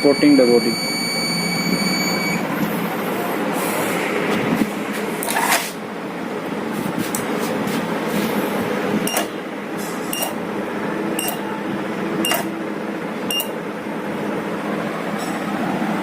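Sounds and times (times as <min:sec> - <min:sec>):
ticks with high beeps: 0:09.1 - 0:09.3, 0:10.1 - 0:10.4, 0:11.2 - 0:11.4, 0:12.2 - 0:12.5, 0:13.3 - 0:13.6.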